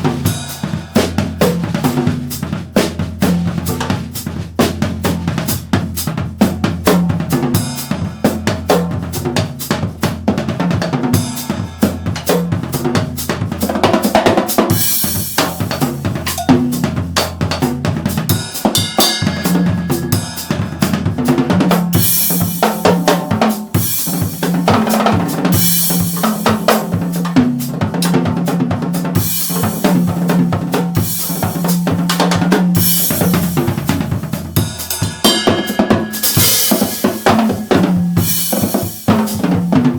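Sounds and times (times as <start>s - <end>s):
drum kit played with sticks: 0.0s - 39.9s
cymbal crashes: 18.4s - 21.3s, 34.7s - 39.0s.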